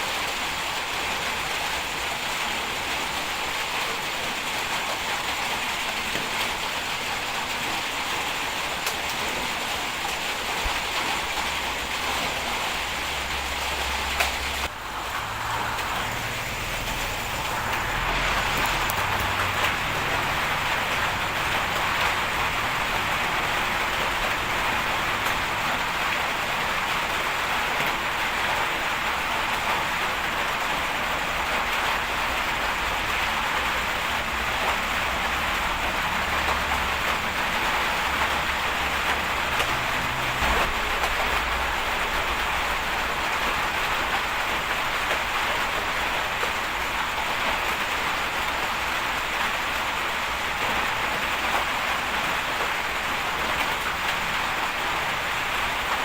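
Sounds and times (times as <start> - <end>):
bulldozer engine rumbling: 13.1 - 24.6.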